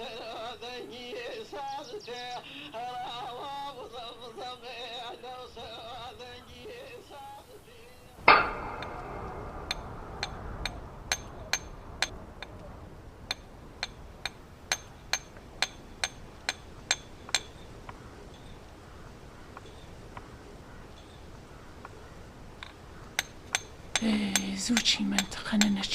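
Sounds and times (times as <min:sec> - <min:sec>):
heavy hammer knock: 0:08.3 - 0:12.1
hammer tapping stone: 0:23.2 - 0:25.9.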